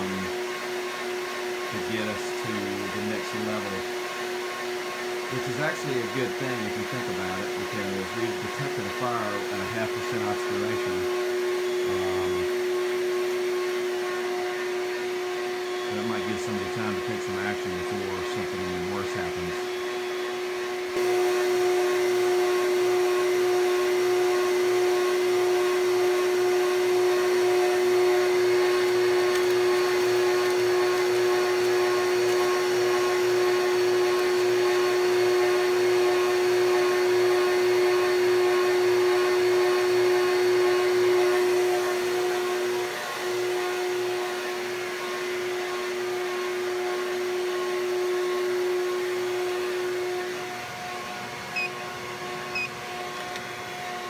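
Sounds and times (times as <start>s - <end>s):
vacuum motor whine: 0.0s - 54.0s.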